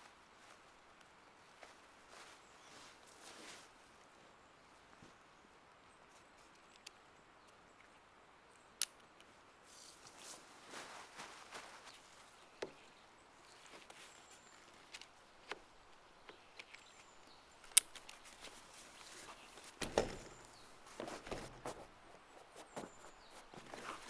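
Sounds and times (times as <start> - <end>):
rustling: 1.4 - 4.3, 9.6 - 24.0
handling clicks and taps: 14.6 - 24.0.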